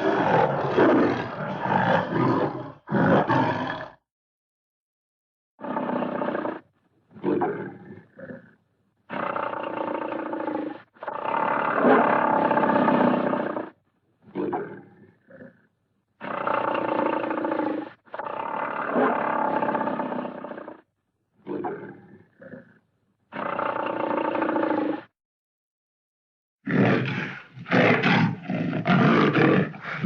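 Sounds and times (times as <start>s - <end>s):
big cat grunting: 0.0s - 4.0s, 26.7s - 30.0s
big cat roaring: 0.0s - 4.0s, 7.2s - 15.6s, 16.2s - 20.8s, 21.4s - 25.1s, 26.7s - 30.0s.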